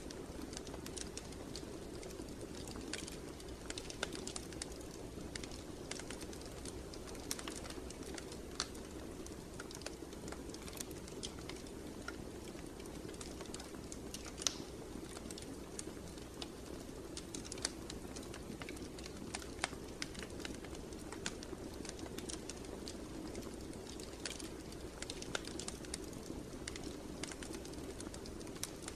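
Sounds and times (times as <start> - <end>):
fire pops and snaps: 0.0 - 28.9
wood fire crackling: 0.0 - 28.9.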